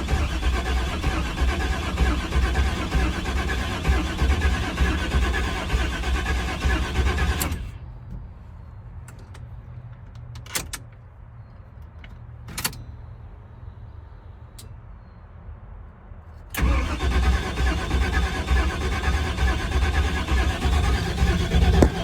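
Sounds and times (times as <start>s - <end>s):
starter cranking truck engine: 0.0s - 7.8s, 16.5s - 22.0s.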